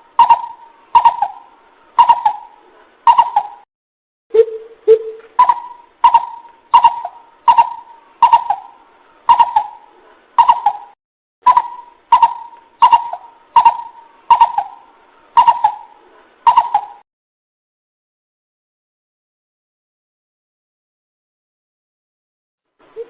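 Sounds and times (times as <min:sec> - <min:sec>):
bird calling low notes: 0:00.0 - 0:03.6, 0:04.3 - 0:17.0.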